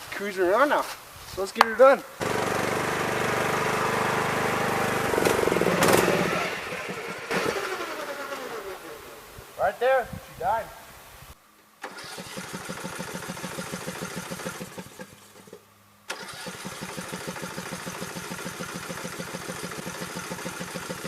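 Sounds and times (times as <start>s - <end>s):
engine starter cranking: 2.2s - 9.1s, 11.8s - 21.0s.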